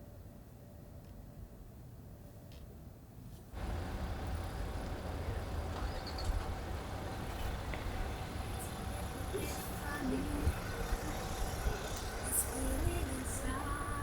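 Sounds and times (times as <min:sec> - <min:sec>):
low rumble of moving car: 0:03.6 - 0:14.0.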